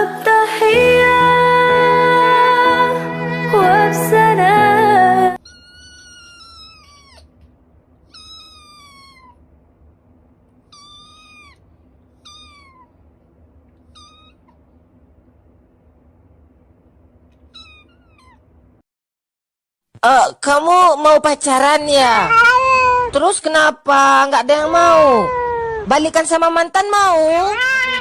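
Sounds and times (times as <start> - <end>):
cat meowing: 5.4 - 7.3, 8.0 - 9.4, 10.6 - 13.0, 13.8 - 14.6, 17.5 - 18.5, 22.2 - 23.2, 24.6 - 25.9, 27.2 - 28.0
faint steady hum: 5.4 - 18.8.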